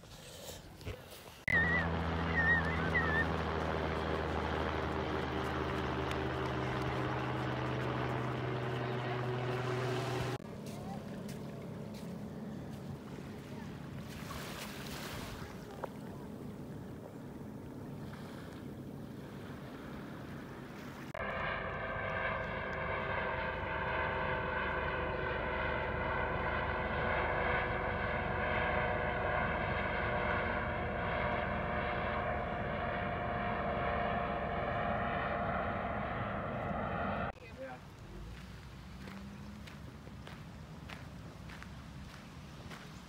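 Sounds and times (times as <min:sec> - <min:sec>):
steady engine drone: 0:00.0 - 0:14.6, 0:15.5 - 0:37.4
wind: 0:00.0 - 0:43.0
water-like noise: 0:13.0 - 0:21.2.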